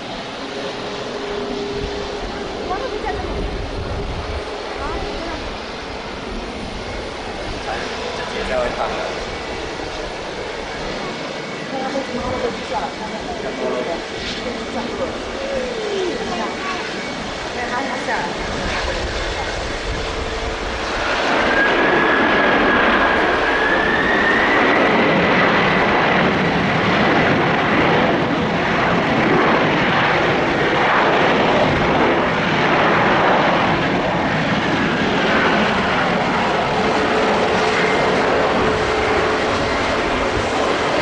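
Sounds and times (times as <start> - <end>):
jet engines with fan whine: 0.0 - 41.0.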